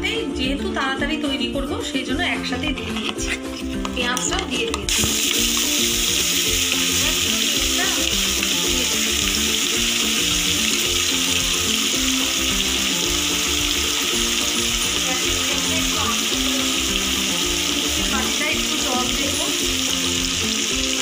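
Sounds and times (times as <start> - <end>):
background music: 0.0 - 21.0
spice paste sizzling in oil: 2.1 - 21.0.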